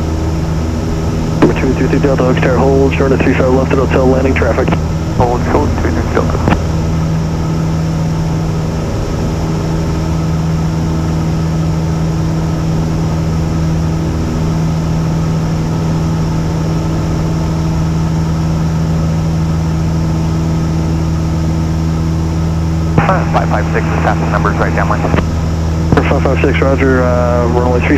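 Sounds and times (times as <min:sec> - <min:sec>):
propeller plane engine droning: 0:00.0 - 0:27.9.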